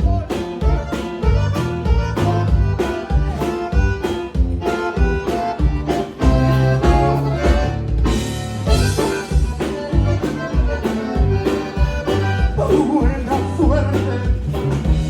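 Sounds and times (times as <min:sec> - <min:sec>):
live band playing instrumental: 0:00.0 - 0:15.0.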